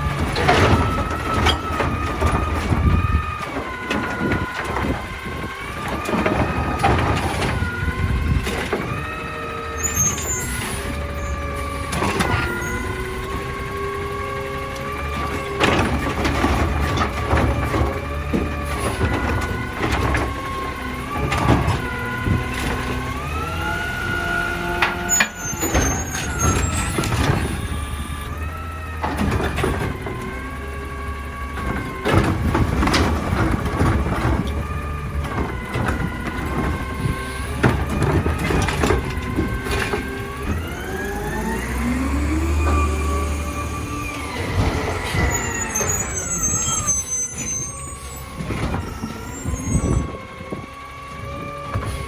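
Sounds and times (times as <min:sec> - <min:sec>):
bangs and knocks: 0:00.0 - 0:09.1
garbage truck engine running: 0:00.0 - 0:52.0.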